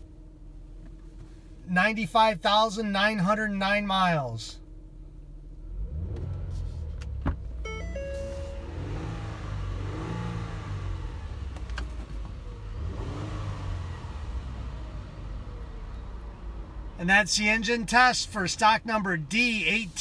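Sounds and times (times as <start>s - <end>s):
car engine idling and revving: 0.0s - 20.0s
short electronic tone: 7.7s - 9.1s.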